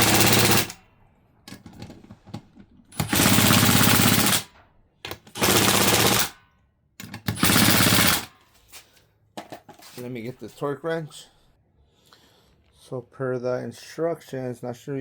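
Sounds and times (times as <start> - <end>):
impact driver hammering: 0.0 - 0.8, 3.0 - 4.5, 5.1 - 6.4, 7.0 - 8.3.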